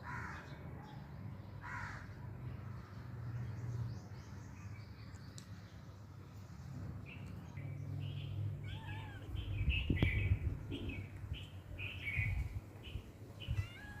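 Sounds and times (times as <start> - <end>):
cat mewing: 8.6 - 9.4, 13.4 - 14.0.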